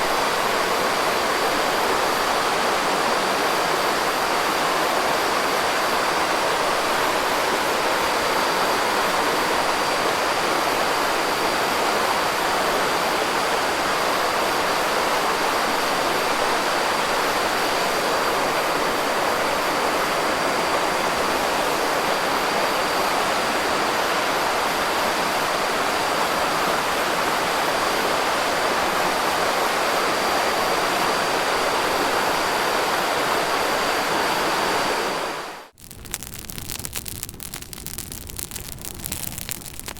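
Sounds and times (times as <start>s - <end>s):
campfire rushing noise: 35.7s - 39.9s.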